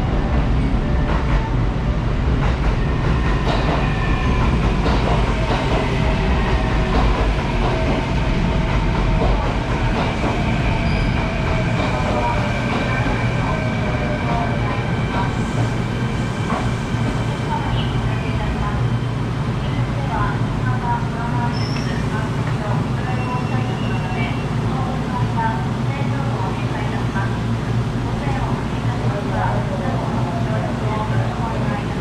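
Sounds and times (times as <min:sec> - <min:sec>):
train whine: 0:00.0 - 0:25.1
electric train rumbling: 0:00.0 - 0:32.0.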